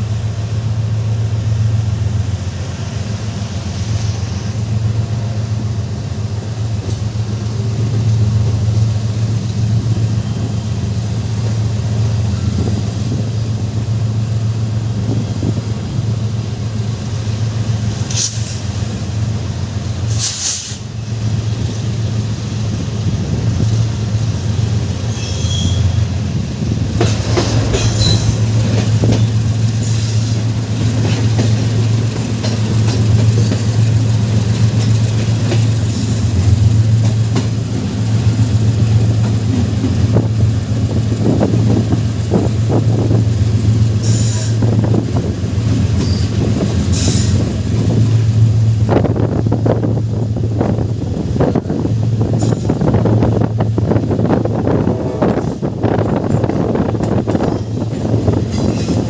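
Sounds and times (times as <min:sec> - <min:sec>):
train running on rails: 0:00.0 - 0:59.0
wheels squealing: 0:25.0 - 0:26.2, 0:27.1 - 0:31.9, 0:45.9 - 0:47.5.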